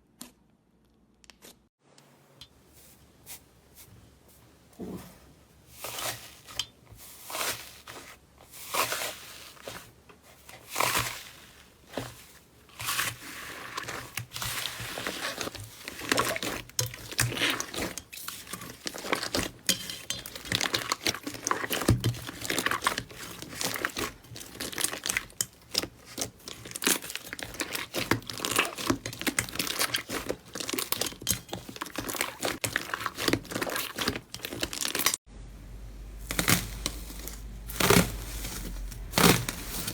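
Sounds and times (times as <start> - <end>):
slime squished and crackling: 7.2 - 35.2, 36.2 - 39.9.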